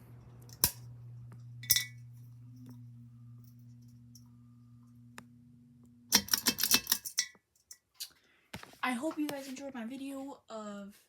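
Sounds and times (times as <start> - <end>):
fan motor hum: 0.0 - 7.2.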